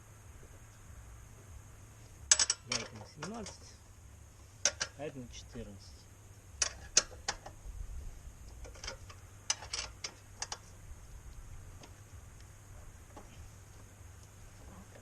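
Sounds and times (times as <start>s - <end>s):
wrenches clinking on metal: 2.3s - 3.6s, 8.6s - 10.6s.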